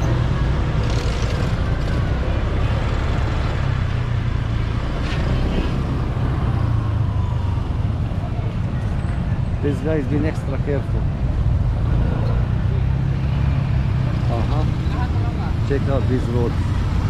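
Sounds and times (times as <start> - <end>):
motorbike engine: 0.0 - 7.7
road traffic: 0.0 - 17.0.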